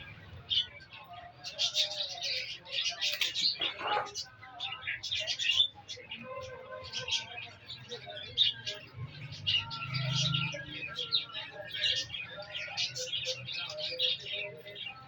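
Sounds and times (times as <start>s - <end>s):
parrots chirping: 1.4s - 6.2s.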